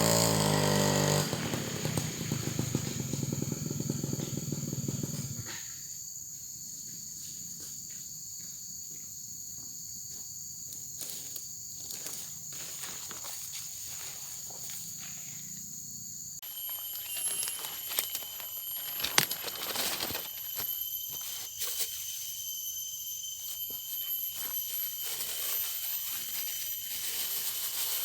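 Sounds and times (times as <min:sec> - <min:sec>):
high-pitched insect drone: 0:00.1 - 0:28.0
clicks and rustling: 0:16.7 - 0:20.8.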